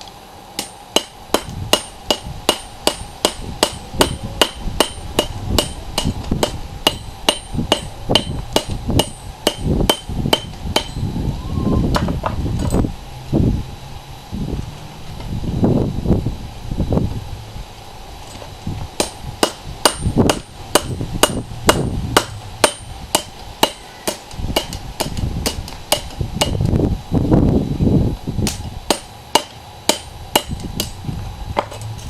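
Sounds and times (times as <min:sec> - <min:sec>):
hammer ringing on anvil: 0:00.6 - 0:11.0, 0:22.2 - 0:25.1.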